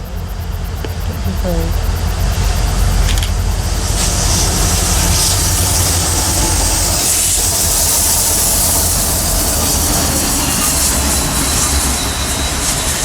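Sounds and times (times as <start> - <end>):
train wheels rumbling on rail: 0.0 - 13.0
broad hiss: 3.5 - 13.0
faint high squeal: 9.9 - 13.0.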